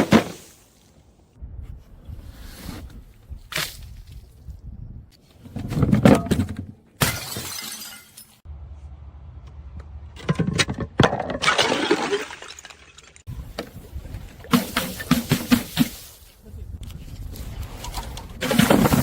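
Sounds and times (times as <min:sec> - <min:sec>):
glass bottles breaking: 0:07.0 - 0:08.4, 0:11.2 - 0:13.3.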